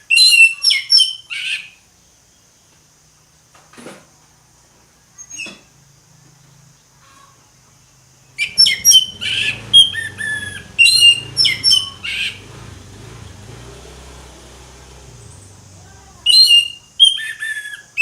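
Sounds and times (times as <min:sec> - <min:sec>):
thrush singing whistled phrases: 0:08.4 - 0:13.7, 0:14.4 - 0:18.0.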